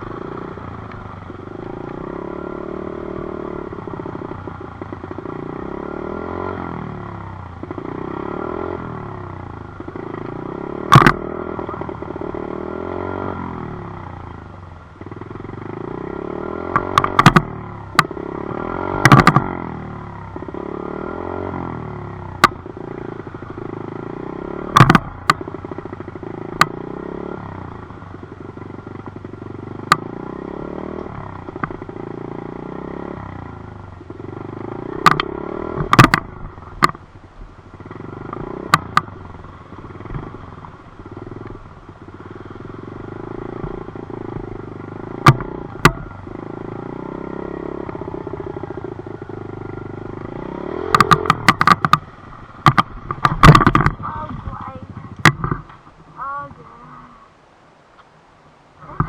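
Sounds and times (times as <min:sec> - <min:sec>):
dirt bike engine running: 0:00.0 - 0:57.1
sharp knocks and rattles: 0:10.9 - 0:11.7, 0:16.7 - 0:18.2, 0:19.0 - 0:19.5, 0:24.7 - 0:25.5, 0:35.0 - 0:37.0, 0:50.8 - 0:55.9.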